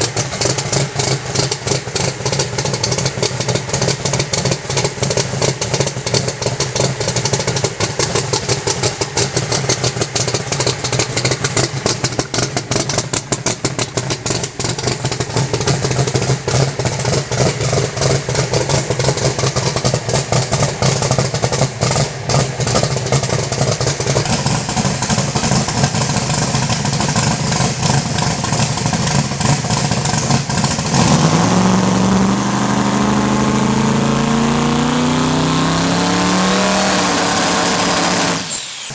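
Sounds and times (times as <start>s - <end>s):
race engine popping and revving: 0.0s - 38.9s.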